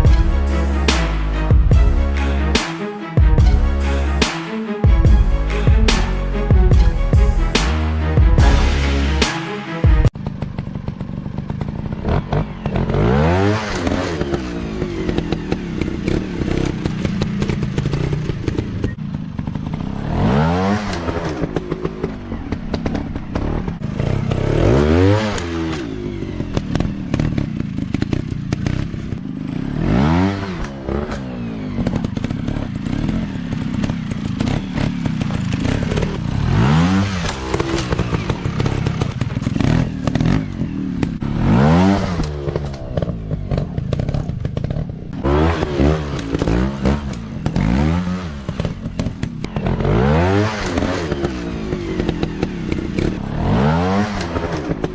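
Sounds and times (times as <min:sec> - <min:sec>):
dirt bike engines revving: 0:10.2 - 0:54.9.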